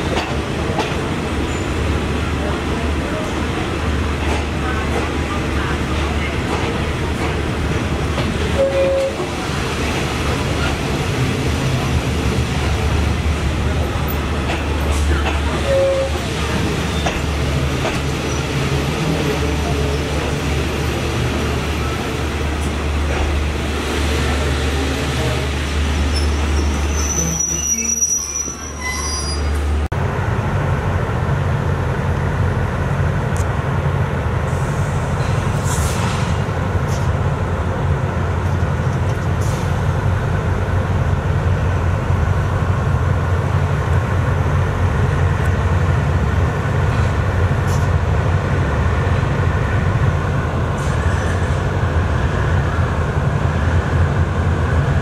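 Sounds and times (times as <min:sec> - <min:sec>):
train carriage rumble: 0:00.0 - 0:55.0
high squeal: 0:26.1 - 0:29.6.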